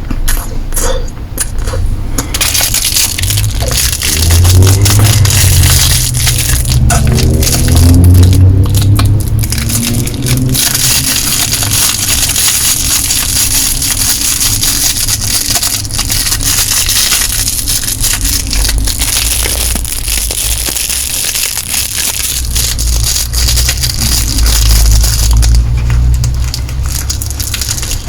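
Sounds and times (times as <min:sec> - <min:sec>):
low rumble: 0:01.7 - 0:28.0.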